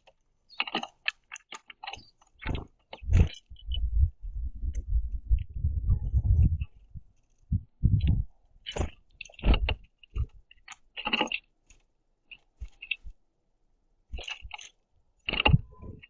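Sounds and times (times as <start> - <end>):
bird pecking seeds on wooden feeder: 0.0 - 4.1, 8.6 - 13.2, 14.1 - 15.6.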